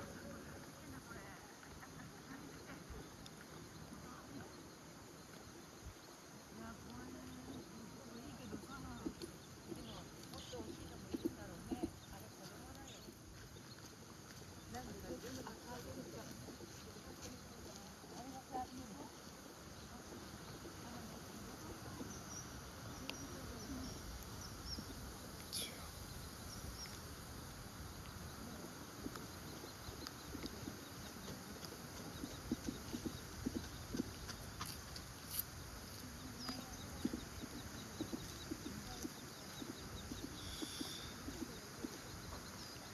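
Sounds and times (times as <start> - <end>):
faint high bird chirps: 35.3 - 42.9.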